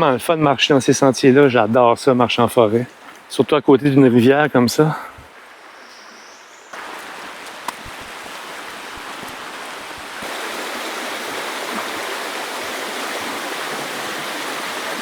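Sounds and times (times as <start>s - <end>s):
river water rushing: 6.7s - 15.0s.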